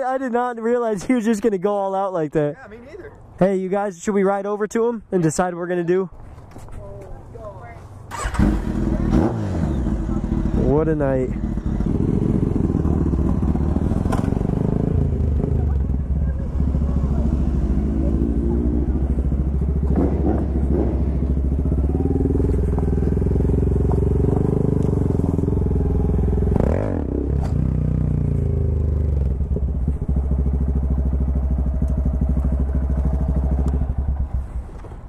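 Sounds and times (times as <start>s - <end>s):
motorcycle engine running: 8.2s - 34.5s.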